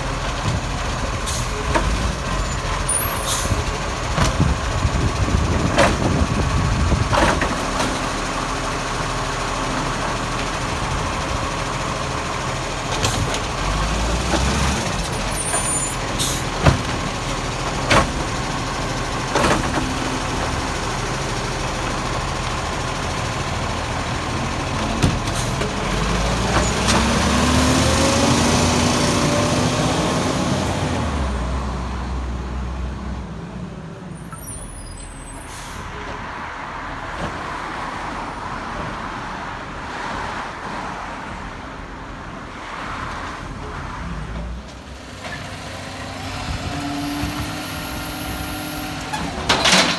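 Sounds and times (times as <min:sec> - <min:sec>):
garbage truck engine running: 0:00.0 - 0:33.8, 0:44.4 - 0:49.9.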